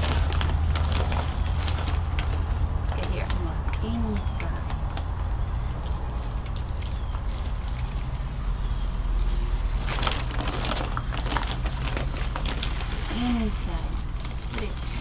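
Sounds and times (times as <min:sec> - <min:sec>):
steady low rumble: 0:00.0 - 0:15.0
bird seed rustling and rattling: 0:09.8 - 0:15.0.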